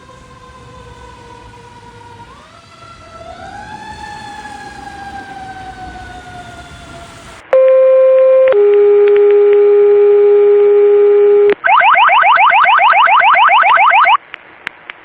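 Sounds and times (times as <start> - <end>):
fire engine siren: 0.0 - 14.2
radio dispatch alert tone: 7.6 - 14.2.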